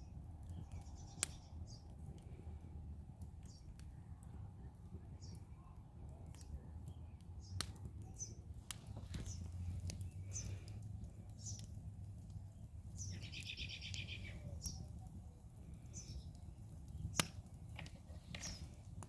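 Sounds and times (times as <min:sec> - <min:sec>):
low steady rumble: 0:00.0 - 0:19.0
burning wood popping: 0:00.1 - 0:19.0
birds chirping: 0:00.4 - 0:01.9, 0:06.3 - 0:19.0.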